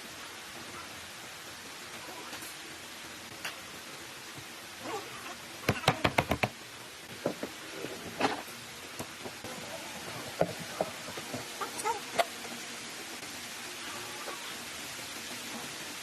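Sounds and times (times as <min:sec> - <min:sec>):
steady hiss: 0:00.0 - 0:16.0
sharp knocks on wood: 0:05.7 - 0:06.6.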